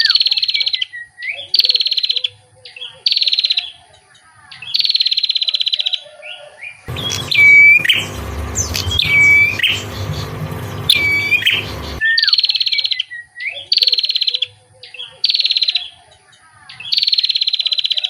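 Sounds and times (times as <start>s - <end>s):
buzzy bird trill: 6.9s - 12.0s
songbird call swooping down: 6.9s - 12.3s.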